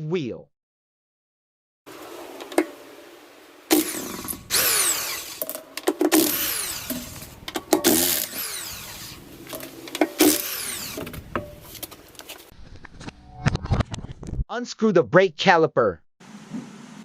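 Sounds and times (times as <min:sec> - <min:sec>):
power tool undoing wheel bolts: 0:03.7 - 0:12.2.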